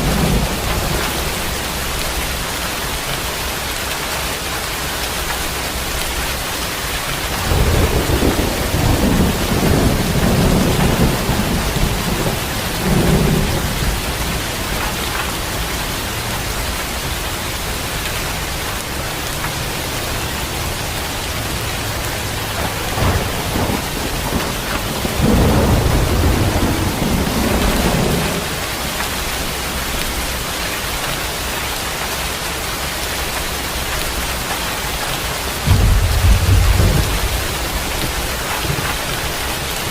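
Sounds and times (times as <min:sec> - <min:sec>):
thunder rumbling: 0:00.0 - 0:03.6, 0:04.8 - 0:30.8, 0:32.7 - 0:39.9
heavy rain: 0:00.0 - 0:39.9
thunder crack: 0:07.3 - 0:15.3, 0:22.2 - 0:29.0, 0:35.6 - 0:39.9.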